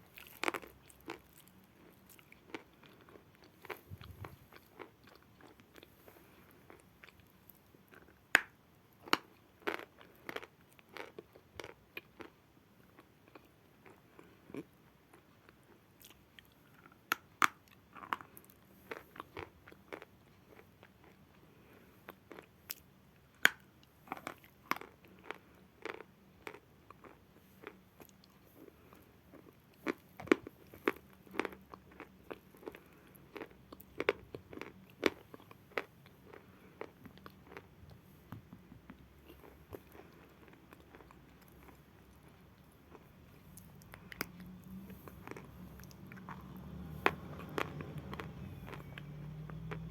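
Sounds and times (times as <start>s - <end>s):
chalk being chewed: 38.9s - 49.9s.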